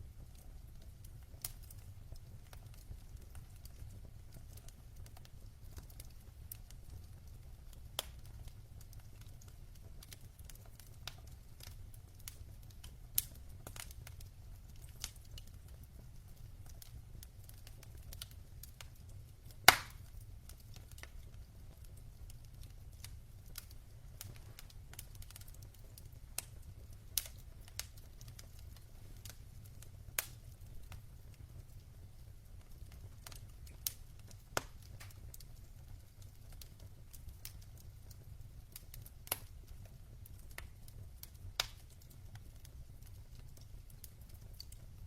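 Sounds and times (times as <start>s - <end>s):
logs crackling in fireplace: 0.0s - 45.0s
low steady fire rumble: 0.0s - 45.0s
loud pop of fire: 19.7s - 20.0s.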